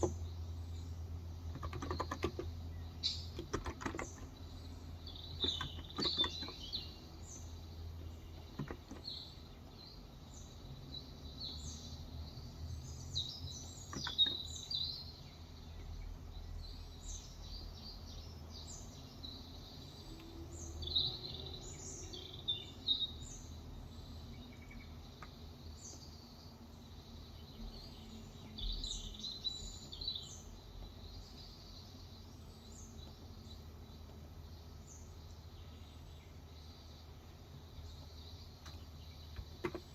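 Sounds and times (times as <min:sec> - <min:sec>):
low steady hum: 0:00.0 - 0:39.9
small birds chirping: 0:00.0 - 0:39.9
keyboard keystrokes: 0:01.5 - 0:02.5, 0:03.3 - 0:04.4, 0:05.4 - 0:06.7, 0:08.5 - 0:09.1, 0:13.9 - 0:14.4.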